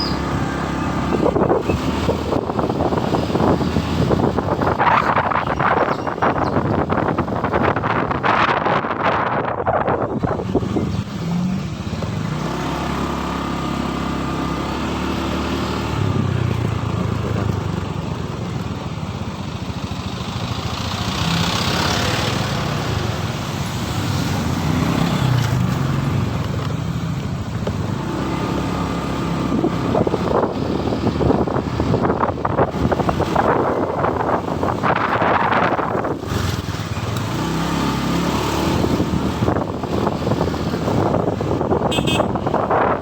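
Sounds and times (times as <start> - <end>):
wind and road noise: 0.0 - 43.0
motorcycle engine running: 10.2 - 43.0.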